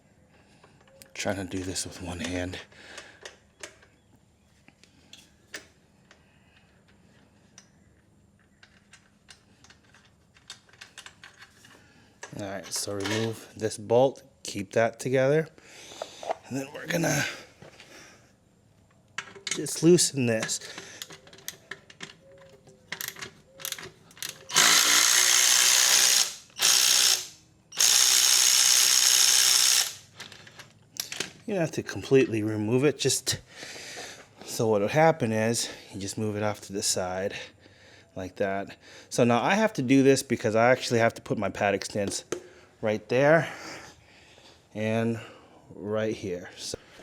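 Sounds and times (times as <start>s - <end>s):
wrench and bolt metallic clicks: 8.4s - 11.6s, 19.0s - 31.4s
electric ratchet wrench running: 24.2s - 30.1s.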